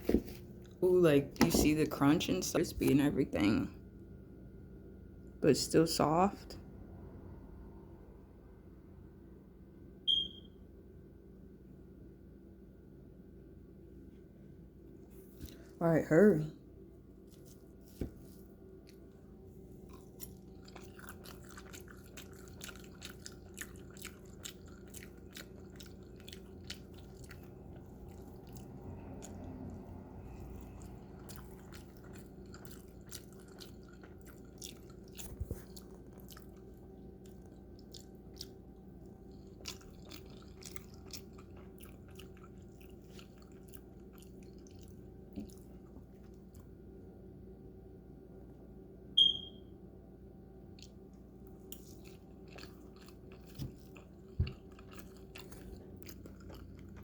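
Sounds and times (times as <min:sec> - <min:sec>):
steady low hum: 0:00.0 - 0:57.0
person chewing crispy food: 0:17.1 - 0:46.8, 0:50.7 - 0:57.0.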